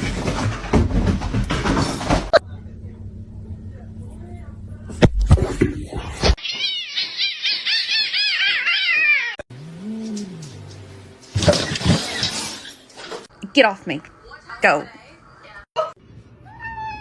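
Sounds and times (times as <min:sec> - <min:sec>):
cat high-pitched calls: 0:06.4 - 0:09.4, 0:16.4 - 0:17.0.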